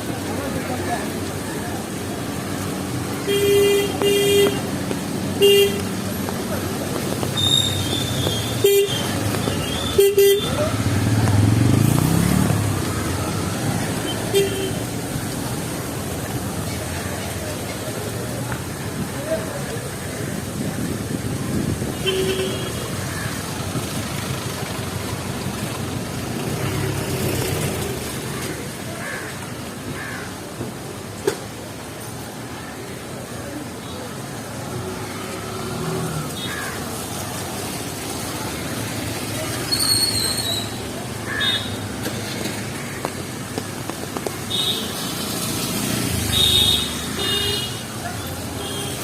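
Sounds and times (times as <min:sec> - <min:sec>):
rain: 0:00.0 - 0:49.0
steady traffic hiss: 0:00.0 - 0:49.0
vehicle rumbling past: 0:10.5 - 0:14.3.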